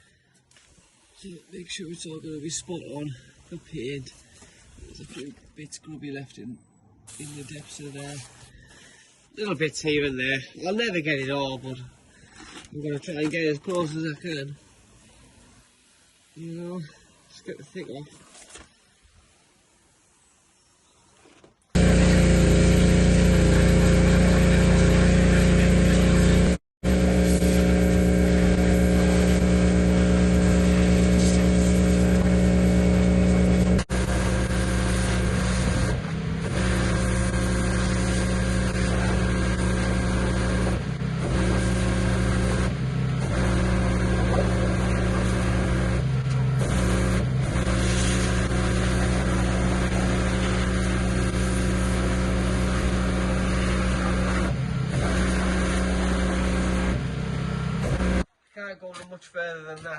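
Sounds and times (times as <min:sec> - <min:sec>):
water spray hissing: 0:00.0 - 0:05.3, 0:07.1 - 0:09.6, 0:13.7 - 0:20.8, 0:21.8 - 0:56.9
pressure washer running: 0:21.8 - 0:58.3.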